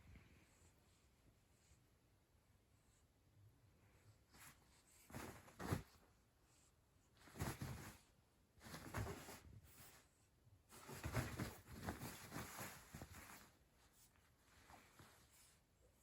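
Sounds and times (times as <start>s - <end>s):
cloth rustling and scratching: 4.3s - 6.2s, 7.1s - 10.1s, 10.7s - 15.7s
soft padded thumps: 4.3s - 6.2s, 7.2s - 10.0s, 10.7s - 15.5s.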